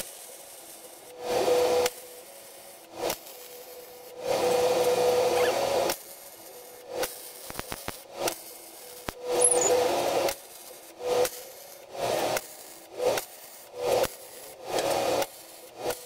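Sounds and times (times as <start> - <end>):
welder arc crackling: 5.4 - 11.4.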